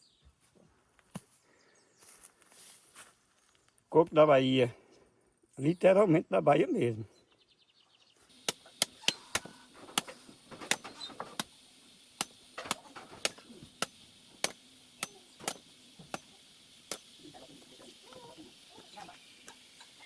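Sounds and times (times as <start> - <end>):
hoe chopping coconut husk: 8.3 - 20.0.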